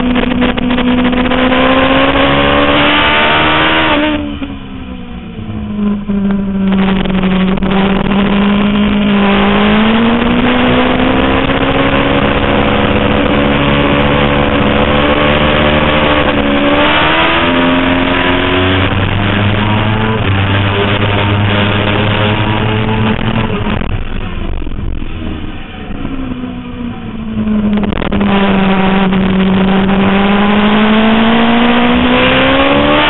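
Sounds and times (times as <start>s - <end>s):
motorcycle engine accelerating: 0.0s - 33.0s.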